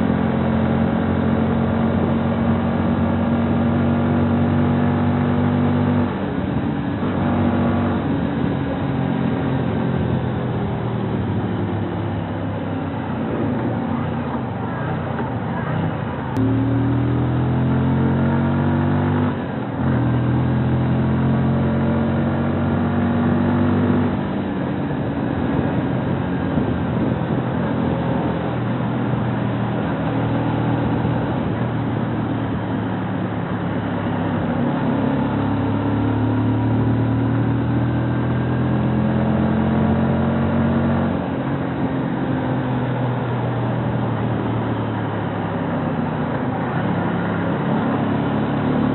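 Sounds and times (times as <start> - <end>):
road and wind noise: 0.0 - 48.9
motorcycle engine revving: 16.4 - 48.9.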